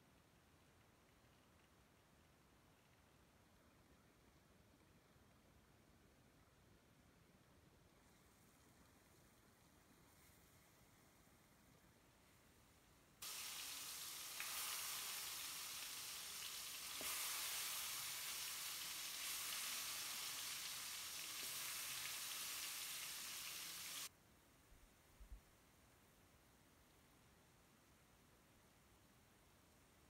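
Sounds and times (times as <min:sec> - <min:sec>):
vegetables sizzling in hot oil: 0:13.2 - 0:24.1.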